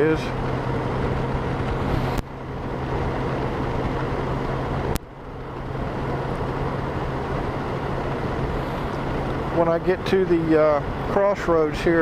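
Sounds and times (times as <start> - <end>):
motorcycle engine hum: 0.0 - 12.0
wind rushing over microphone: 0.0 - 12.0.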